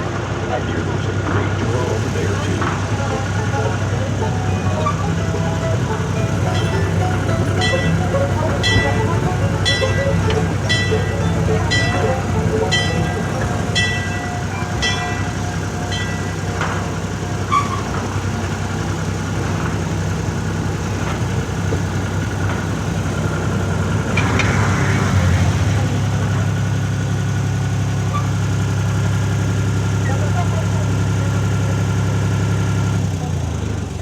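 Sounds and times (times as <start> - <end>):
train mechanical hum: 0.0 - 34.0.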